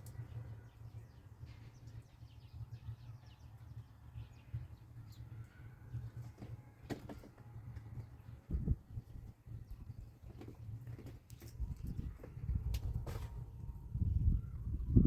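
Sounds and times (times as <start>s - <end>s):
steady low rumble: 11.6s - 15.0s.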